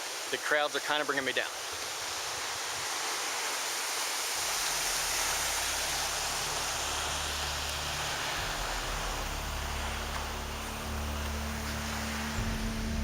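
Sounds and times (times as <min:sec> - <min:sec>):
waves breaking on beach: 0:00.0 - 0:13.0
low sustained tones: 0:04.4 - 0:13.0.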